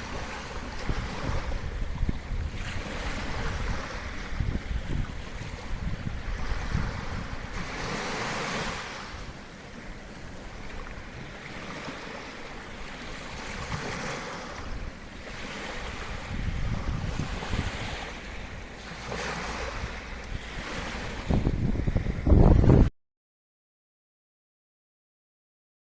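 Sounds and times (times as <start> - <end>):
wind buffeting microphone: 0.0 - 12.3, 12.9 - 22.9
sea waves breaking on shore: 0.0 - 22.9.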